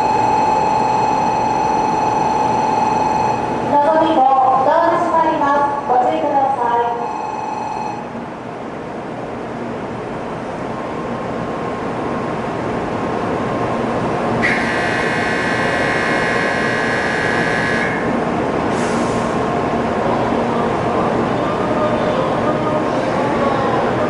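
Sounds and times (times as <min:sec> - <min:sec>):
high steady tone: 0:00.0 - 0:04.2, 0:05.4 - 0:08.1, 0:14.4 - 0:18.1
train running: 0:09.0 - 0:24.0.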